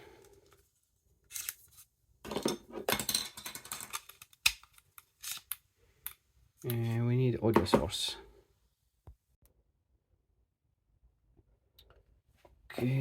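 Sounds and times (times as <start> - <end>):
plastic parts scraping and rustling: 0.2 - 5.6.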